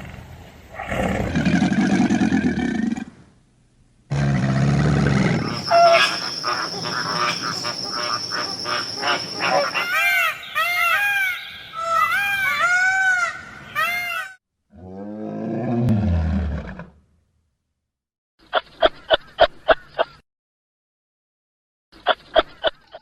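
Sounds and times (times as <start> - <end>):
animal calls: 4.4 - 14.4.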